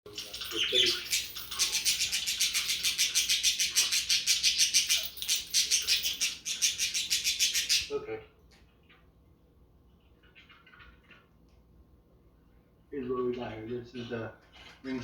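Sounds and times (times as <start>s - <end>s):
small bells jingling: 0.1s - 3.9s, 4.7s - 6.6s.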